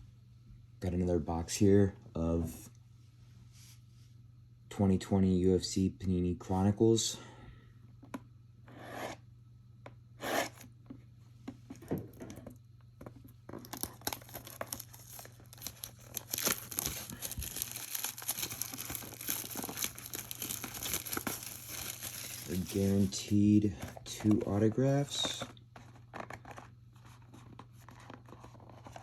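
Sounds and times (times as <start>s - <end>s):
plastic crinkling: 13.1s - 24.1s
plastic shrink wrap tearing: 13.6s - 23.3s.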